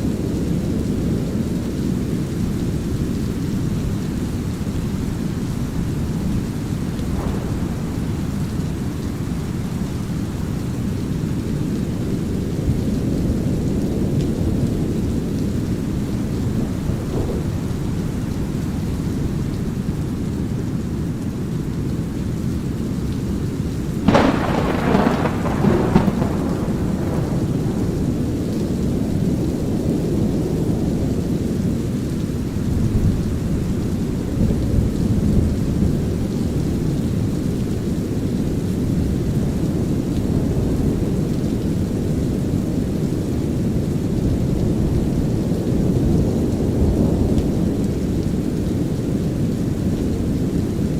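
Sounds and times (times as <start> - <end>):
light rain: 0.0 - 50.9
raindrop ticks: 1.7 - 29.6
rolling thunder: 5.0 - 19.8, 24.0 - 31.9
deep brown noise rumble: 5.1 - 12.4.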